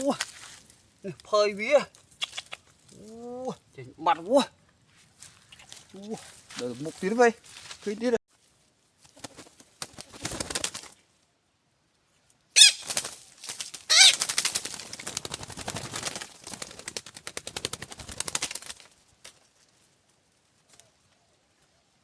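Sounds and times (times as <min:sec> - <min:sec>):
rapid wing flapping: 0:09.0 - 0:11.0, 0:12.6 - 0:19.5
bird squawking harshly: 0:12.6 - 0:12.9, 0:13.9 - 0:14.2.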